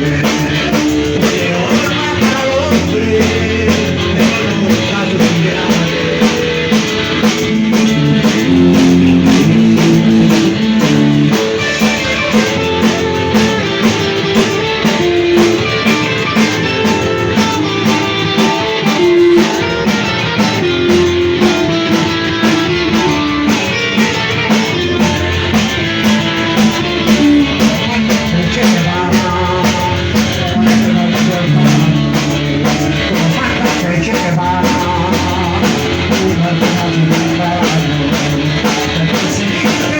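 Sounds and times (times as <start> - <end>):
drum kit beat: 0.0 - 39.9
electric guitar: 0.0 - 39.9.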